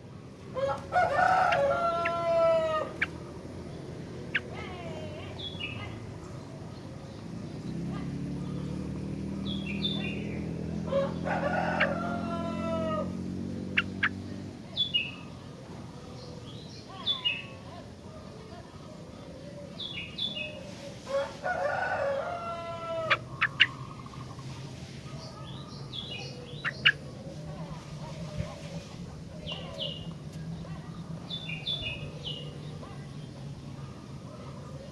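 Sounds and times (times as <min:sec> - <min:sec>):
rooster crowing: 0:00.6 - 0:03.0, 0:10.9 - 0:13.3, 0:21.1 - 0:23.2
bulbul chirping: 0:25.3 - 0:27.2.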